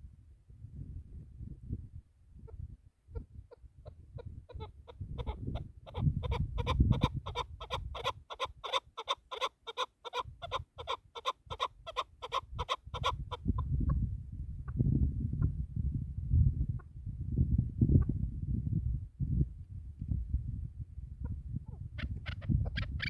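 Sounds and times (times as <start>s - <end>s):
low rumble of wind: 0.0s - 9.3s, 10.2s - 23.0s
partridge clucking calls: 4.2s - 13.6s, 21.7s - 23.0s.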